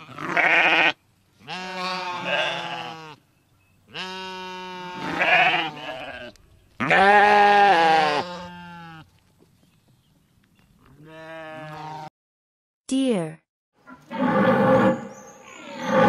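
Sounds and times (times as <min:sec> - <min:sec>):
sheep bleating: 0:00.0 - 0:03.2, 0:03.9 - 0:09.1, 0:10.9 - 0:12.1.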